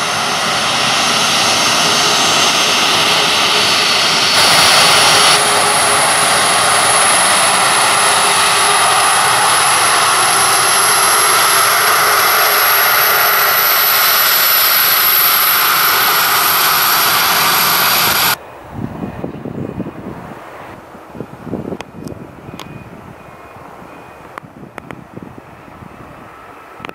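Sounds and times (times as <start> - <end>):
high whine rising in pitch: 0.0 - 18.4
aircraft engines running: 0.0 - 26.9.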